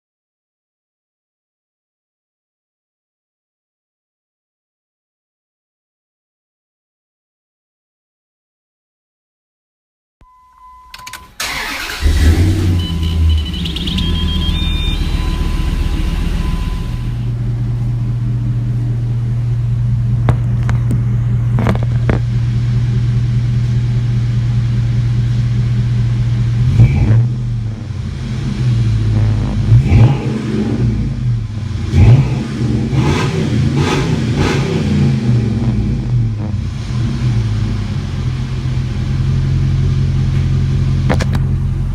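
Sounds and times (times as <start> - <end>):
truck engine idling and revving: 11.4 - 41.9.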